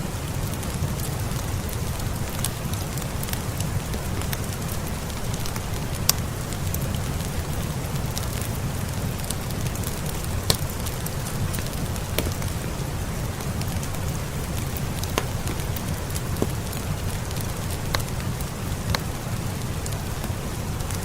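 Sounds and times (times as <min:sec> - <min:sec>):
steady rain: 0:00.0 - 0:21.0
wood fire crackling and popping: 0:00.0 - 0:21.0.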